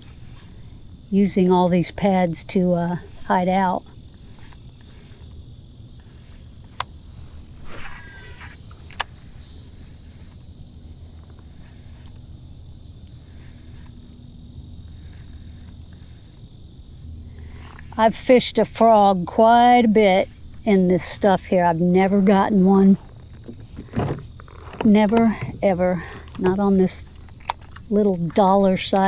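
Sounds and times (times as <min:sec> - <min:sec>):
insects trilling: 0:00.0 - 0:29.0
brief rustle: 0:06.2 - 0:09.4, 0:23.0 - 0:29.0
sharp clicks: 0:23.0 - 0:29.0.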